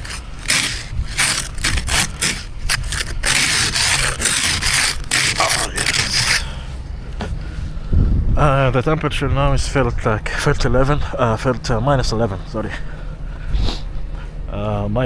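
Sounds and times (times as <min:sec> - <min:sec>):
snow scraper scraping ice off car: 0:00.0 - 0:06.9.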